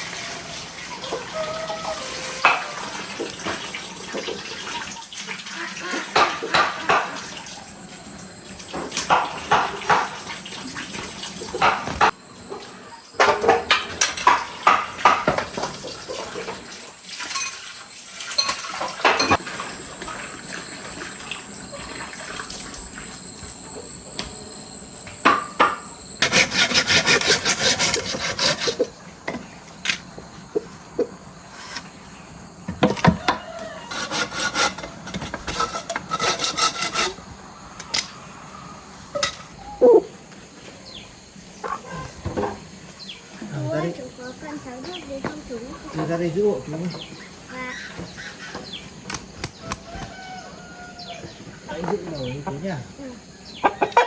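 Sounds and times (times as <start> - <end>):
rapid hand sawing: 26.2 - 28.9, 33.9 - 37.2.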